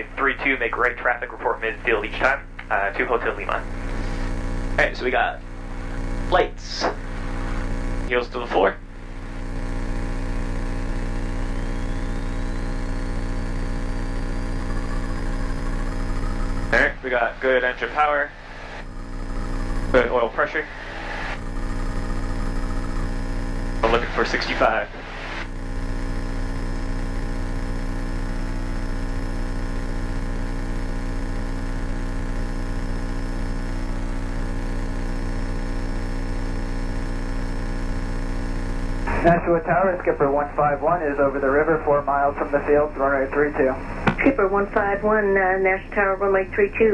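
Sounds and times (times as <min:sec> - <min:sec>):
airplane engine and propeller drone: 0:00.0 - 0:09.5, 0:13.8 - 0:25.2, 0:39.1 - 0:46.8
faint high whine: 0:00.0 - 0:46.9.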